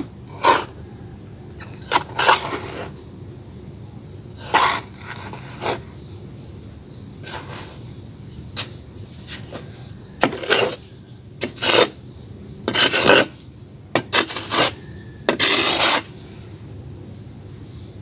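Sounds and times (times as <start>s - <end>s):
gritty crunches and scrapes: 1.6s - 3.0s, 4.4s - 5.9s, 8.6s - 12.0s, 12.7s - 13.4s, 14.0s - 16.3s.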